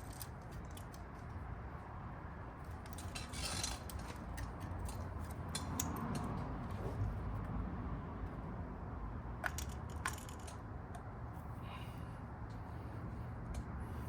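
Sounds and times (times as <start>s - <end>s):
clicks and knocks of parts handled: 0.0s - 1.5s, 2.6s - 7.1s, 9.4s - 11.1s.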